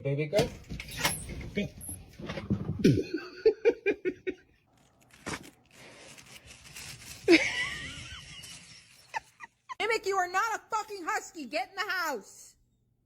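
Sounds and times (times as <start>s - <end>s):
person laughing: 2.8s - 4.6s, 7.2s - 9.8s.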